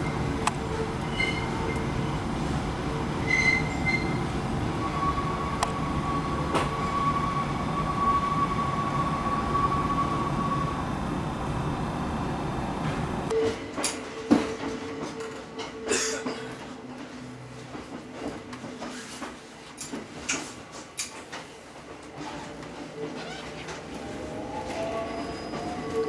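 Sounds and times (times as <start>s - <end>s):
wheels squealing: 0.0s - 2.1s, 3.2s - 4.2s
train rumbling: 0.0s - 26.0s.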